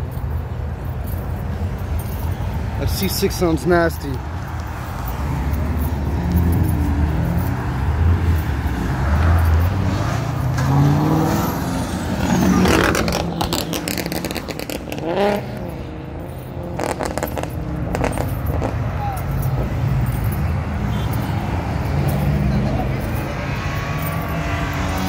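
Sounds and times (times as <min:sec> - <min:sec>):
light traffic noise: 0:00.0 - 0:25.0
car accelerating past: 0:05.2 - 0:16.1.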